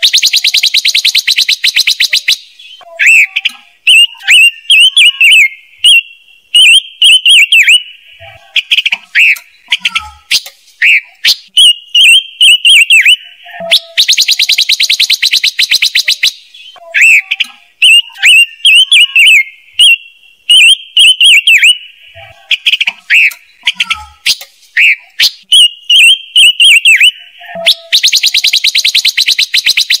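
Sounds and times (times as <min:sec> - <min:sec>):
bird chirps and whistles: 0:00.0 - 0:08.0, 0:08.7 - 0:21.9, 0:22.7 - 0:30.0.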